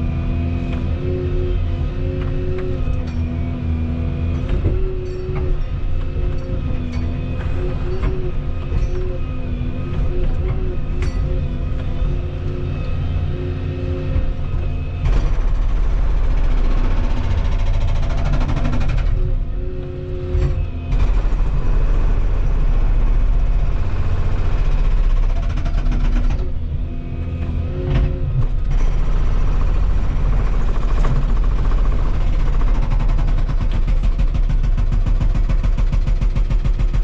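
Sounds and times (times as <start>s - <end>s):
excavator engine rattling: 0.0s - 37.0s
hydraulic hum: 0.6s - 33.9s.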